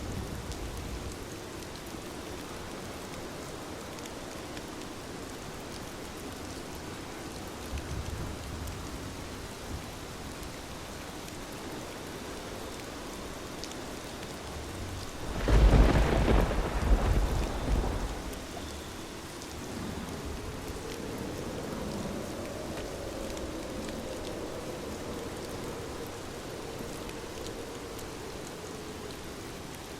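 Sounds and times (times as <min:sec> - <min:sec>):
heavy rain falling: 0:00.0 - 0:29.9
thunder rumbling: 0:14.8 - 0:18.8
loud thunder peal: 0:15.2 - 0:18.4.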